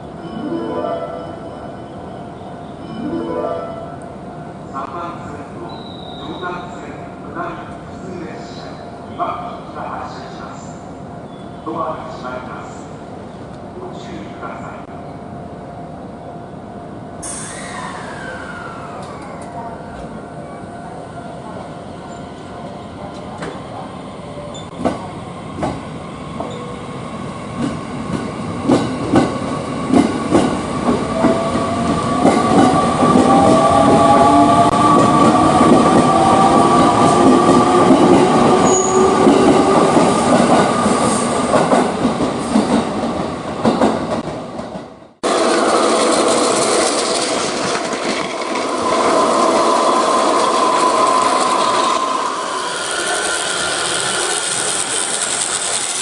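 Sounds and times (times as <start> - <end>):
train running with held tone: 0.0 - 4.7, 5.7 - 6.4, 26.4 - 56.0
train wheels clacking over rail joints: 45.2 - 52.0.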